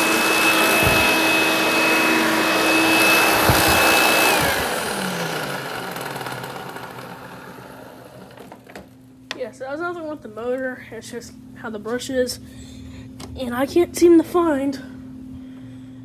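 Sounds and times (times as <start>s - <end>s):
vacuum cleaner whining: 0.0s - 9.0s
low thumps of brush: 0.6s - 1.6s, 2.8s - 4.6s.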